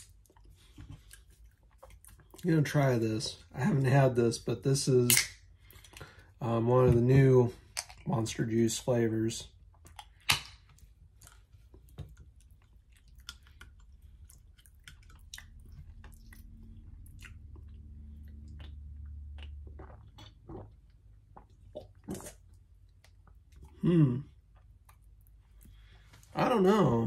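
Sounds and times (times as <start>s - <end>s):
person chewing: 0.0s - 2.5s, 9.7s - 26.2s
low steady hum: 0.0s - 27.0s.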